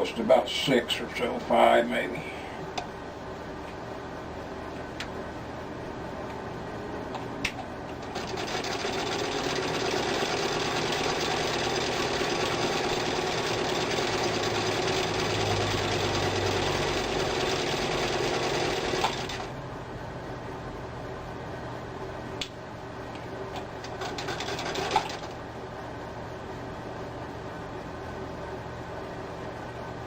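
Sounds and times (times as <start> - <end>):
sewing machine stitching: 8.0 - 19.6, 23.8 - 25.4.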